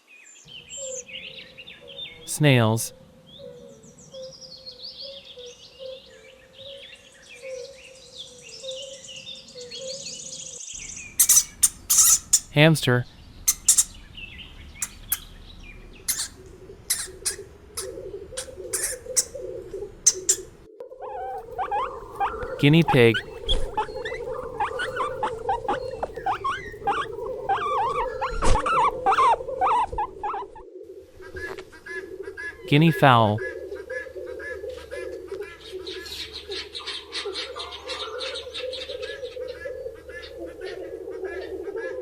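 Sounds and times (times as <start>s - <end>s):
small birds chirping: 0.0s - 33.5s
guinea pig squeaking: 10.9s - 12.6s, 13.5s - 15.4s, 16.0s - 30.6s.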